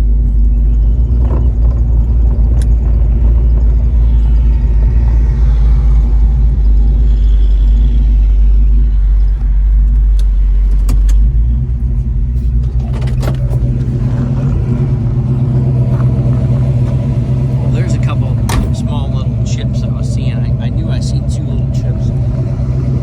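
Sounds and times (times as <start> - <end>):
car engine rumbling: 0.0 - 23.0
sharp clicks: 0.2 - 4.7.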